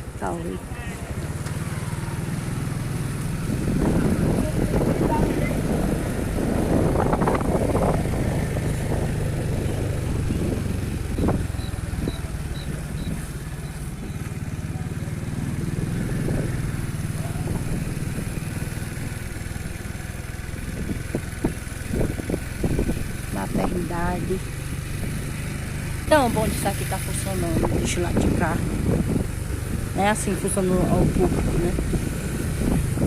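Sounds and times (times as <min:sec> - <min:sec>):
small motor vehicle engine running: 0:00.0 - 0:33.0.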